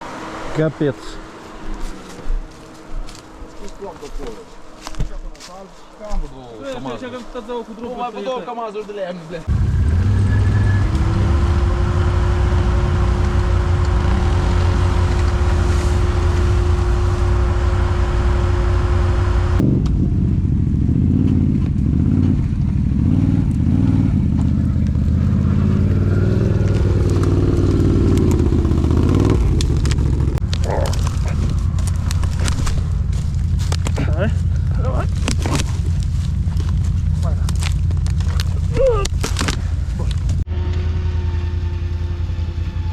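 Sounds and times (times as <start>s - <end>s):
quad bike engine rumbling: 9.5s - 42.9s
steady hum: 11.6s - 21.1s.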